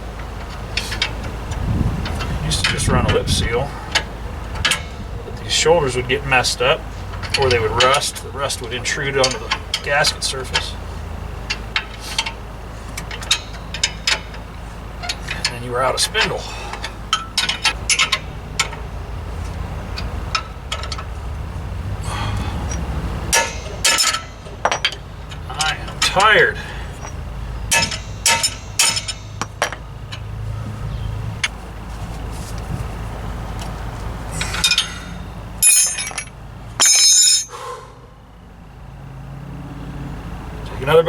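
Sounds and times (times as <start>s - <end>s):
metal parts clinking: 13.0s - 21.2s, 22.6s - 30.4s, 34.3s - 37.6s
metal knock: 27.0s - 30.3s.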